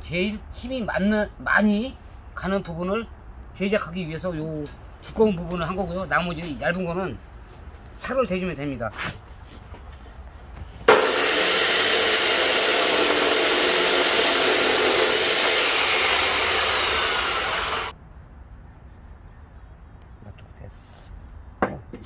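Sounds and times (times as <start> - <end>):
angle grinder grinding steel: 10.9 - 17.9.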